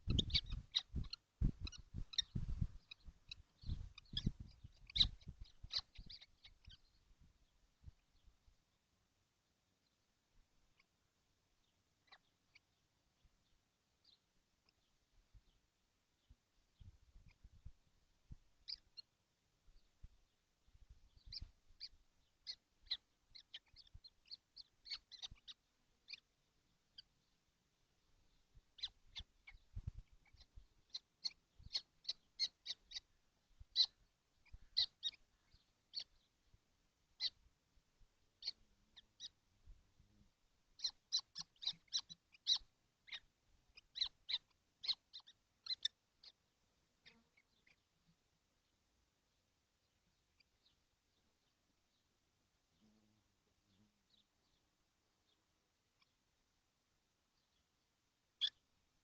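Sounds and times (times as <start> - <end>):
young kestrels squeaky calls: 0.0 - 7.0, 12.0 - 12.8, 18.6 - 19.1, 21.1 - 27.3, 28.3 - 36.3, 37.2 - 37.4, 38.4 - 39.4, 40.7 - 47.9, 50.3 - 50.8, 55.3 - 56.2, 58.4 - 58.7.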